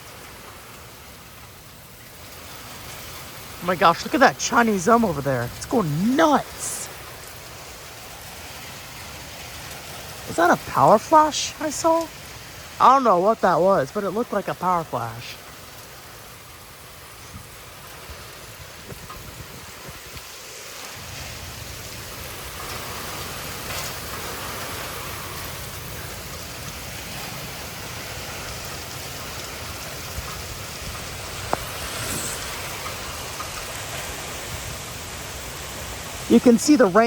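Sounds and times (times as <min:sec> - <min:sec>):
heavy rain pouring: 0:00.0 - 0:37.0
wind gusts rushing: 0:16.4 - 0:37.0.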